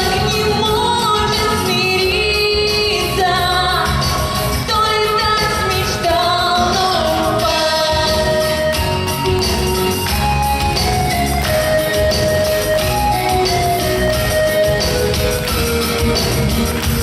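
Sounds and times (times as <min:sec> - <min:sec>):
woman singing pop song: 0:00.0 - 0:09.0
instrumental accompaniment with beat: 0:00.0 - 0:17.0.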